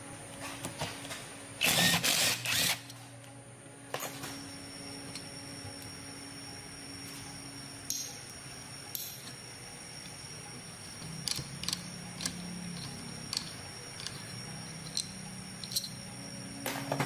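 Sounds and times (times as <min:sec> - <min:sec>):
steady background hum: 0:00.0 - 0:17.0
metal tools clicking and clinking: 0:07.9 - 0:08.2, 0:08.9 - 0:09.4, 0:11.2 - 0:16.1.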